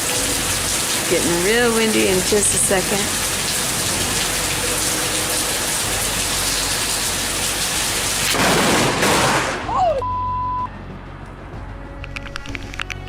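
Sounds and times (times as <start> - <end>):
heavy rain falling: 0.0 - 9.9.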